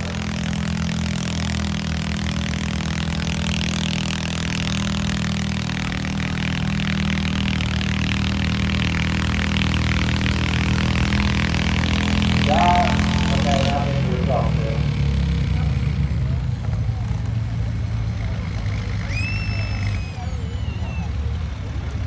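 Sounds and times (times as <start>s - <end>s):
tractor engine running: 0.0s - 19.1s
noise haze: 12.2s - 15.0s.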